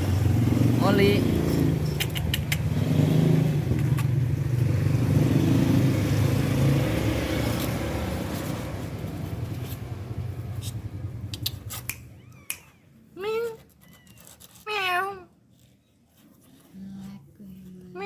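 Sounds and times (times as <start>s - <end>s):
vehicle engine rumbling: 0.0s - 14.7s
sharp clicks: 1.9s - 2.7s.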